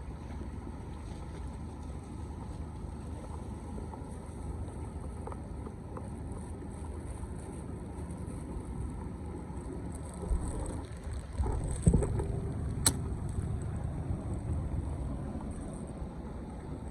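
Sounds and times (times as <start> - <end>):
sharp click: 12.8 - 13.4.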